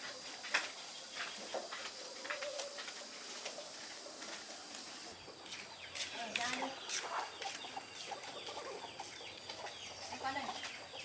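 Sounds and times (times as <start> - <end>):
chickens calling softly: 0.0 - 11.0.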